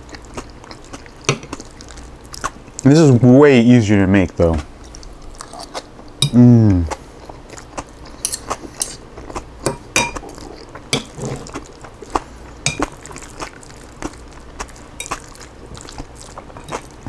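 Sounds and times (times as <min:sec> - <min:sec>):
utensil clinking on dish: 0:09.6 - 0:10.2, 0:12.7 - 0:12.9.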